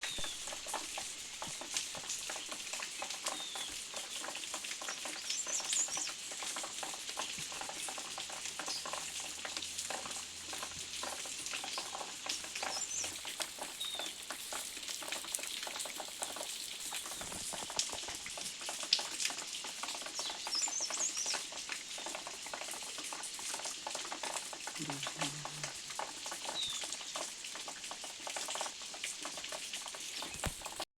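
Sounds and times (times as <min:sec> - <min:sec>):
rain pattering: 0:00.0 - 0:30.9.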